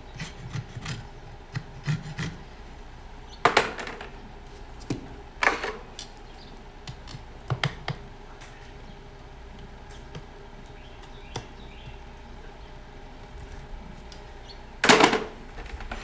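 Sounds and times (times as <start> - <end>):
tools knocking on horseshoe: 3.4 - 4.2.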